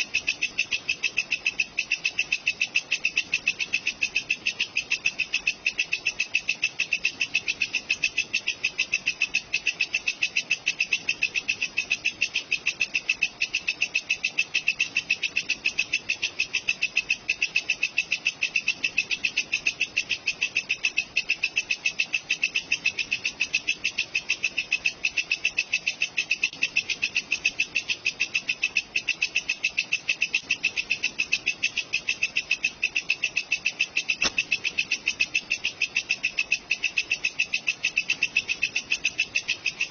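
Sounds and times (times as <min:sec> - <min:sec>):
insect chirping: 0:00.0 - 0:39.9.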